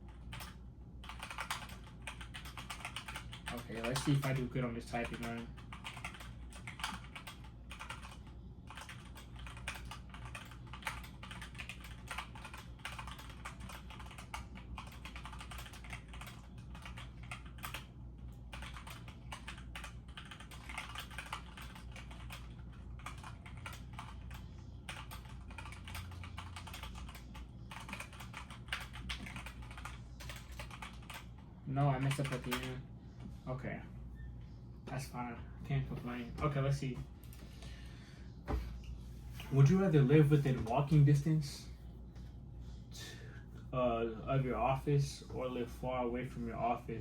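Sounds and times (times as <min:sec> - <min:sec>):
fast typing on keyboard: 0:00.0 - 0:32.8
low steady hum: 0:00.0 - 0:47.0.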